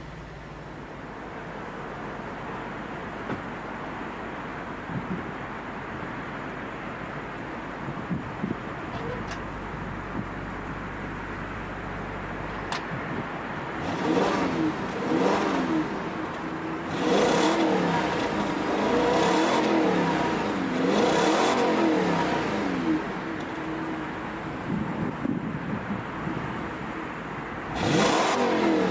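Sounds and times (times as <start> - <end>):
car engine revving: 13.4 - 25.6, 27.6 - 28.9.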